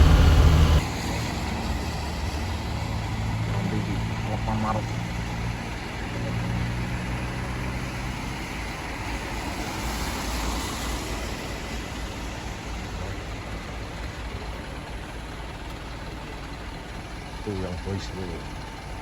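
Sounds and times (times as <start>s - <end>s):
pitched engine tone: 0.0s - 0.8s
road and tyre noise: 0.0s - 19.0s
truck engine drone: 0.0s - 19.0s.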